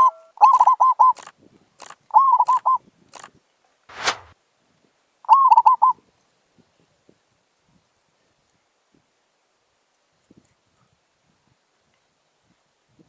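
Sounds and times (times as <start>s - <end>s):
dove cooing: 0.0s - 1.1s
sharp click: 3.9s - 4.4s.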